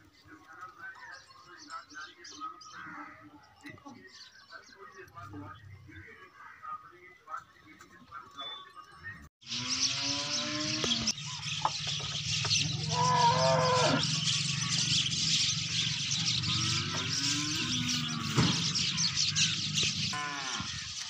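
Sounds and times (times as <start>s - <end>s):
cattle mooing: 12.8s - 14.3s, 16.4s - 18.4s, 20.1s - 20.8s.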